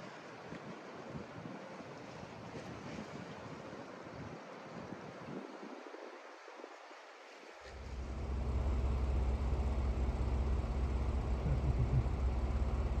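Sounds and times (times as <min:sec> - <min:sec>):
engine idling hum: 0:07.7 - 0:13.0.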